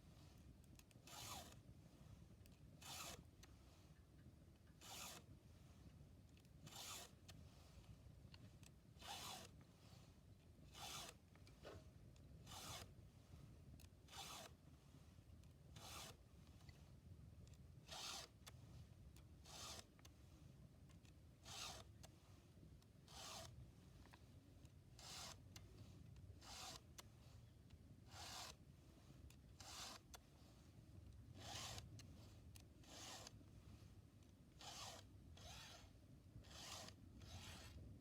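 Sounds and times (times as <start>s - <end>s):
file rasping on chainsaw chain: 1.1s - 1.6s, 2.8s - 3.3s, 4.7s - 5.2s, 6.7s - 7.2s, 9.0s - 9.6s, 10.8s - 11.2s, 14.1s - 14.6s, 15.8s - 16.2s, 17.9s - 18.4s, 19.4s - 19.9s, 21.4s - 21.9s, 23.1s - 23.6s, 25.0s - 25.4s, 26.4s - 26.9s, 28.1s - 28.6s, 29.6s - 30.1s, 31.4s - 31.9s, 32.8s - 33.4s, 34.6s - 37.8s.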